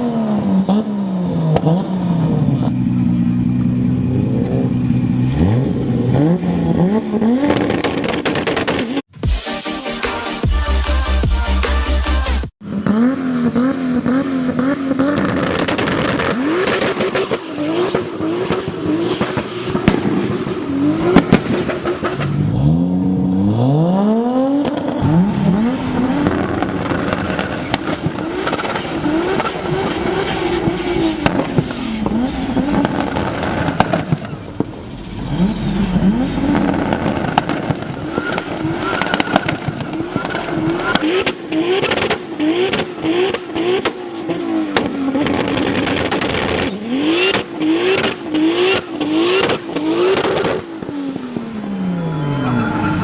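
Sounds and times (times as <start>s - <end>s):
car engine revving on limiter: 0.0s - 9.0s, 12.6s - 53.0s
exhaust pops and crackles: 7.4s - 9.1s, 13.4s - 22.4s, 24.6s - 51.0s.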